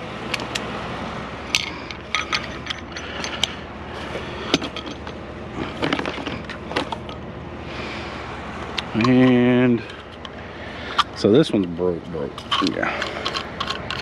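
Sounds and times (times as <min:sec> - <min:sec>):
steady low hum: 0:00.0 - 0:14.0
item clicking and rattling: 0:01.5 - 0:07.2, 0:08.8 - 0:14.0.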